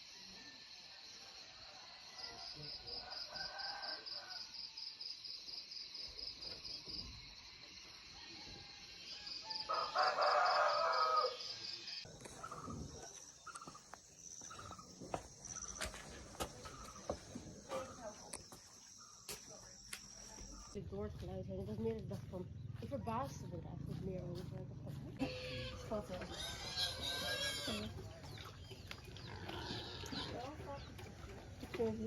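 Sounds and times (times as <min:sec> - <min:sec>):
insect chorus: 0:00.0 - 0:20.8
rooster crowing: 0:01.6 - 0:04.6, 0:08.2 - 0:11.6.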